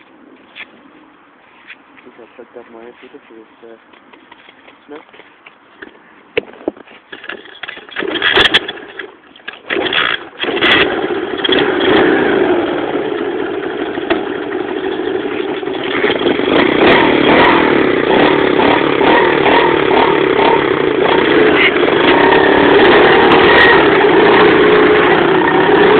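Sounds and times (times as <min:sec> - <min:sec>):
motorbike engine starting and running: 0:07.1 - 0:25.9.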